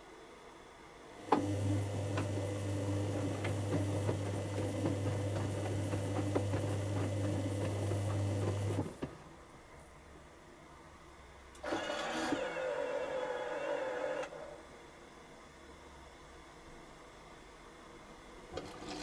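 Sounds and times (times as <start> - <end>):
washing machine running: 1.2 - 9.4.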